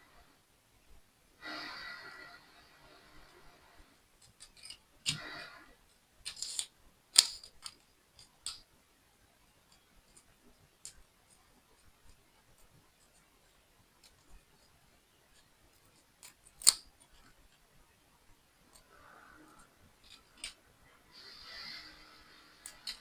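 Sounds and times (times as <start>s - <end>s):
plastic parts clicking and tapping: 4.2s - 5.4s, 6.2s - 8.7s, 15.3s - 17.7s, 19.5s - 20.6s, 22.6s - 23.0s
plastic parts rustling: 4.2s - 5.6s, 6.2s - 8.6s, 19.5s - 20.6s, 22.5s - 23.0s.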